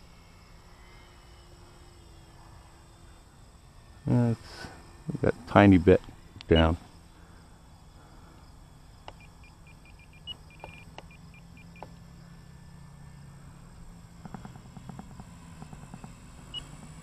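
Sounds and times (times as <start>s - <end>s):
faint low drone: 0.0s - 17.0s
radio transmitter beeping: 6.5s - 6.8s.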